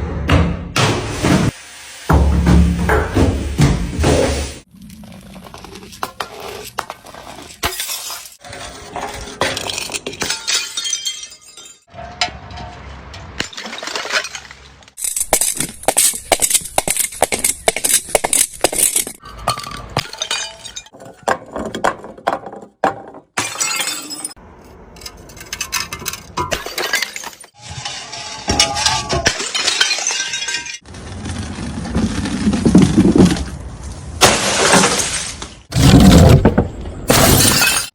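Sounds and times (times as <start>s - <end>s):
glass bottles smashing: 7.5s - 8.4s, 9.4s - 11.9s, 13.4s - 21.0s, 23.4s - 24.4s, 25.5s - 30.8s, 34.2s - 36.5s, 37.1s - 37.9s
clinking glass shards: 7.6s - 8.4s, 9.5s - 11.9s, 25.3s - 30.8s, 37.1s - 37.9s.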